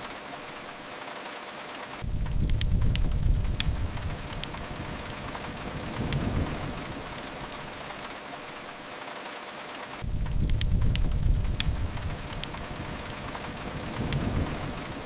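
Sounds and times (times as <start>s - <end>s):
rain hiss: 0.0s - 15.0s
wood fire crackling: 0.0s - 15.0s
deep low rumble: 2.0s - 5.0s, 10.0s - 14.8s.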